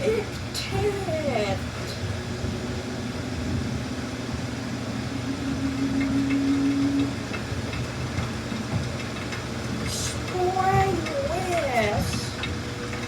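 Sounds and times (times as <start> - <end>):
washing machine drum rumble: 0.8 - 13.0
motor hum rising in pitch: 2.0 - 8.7.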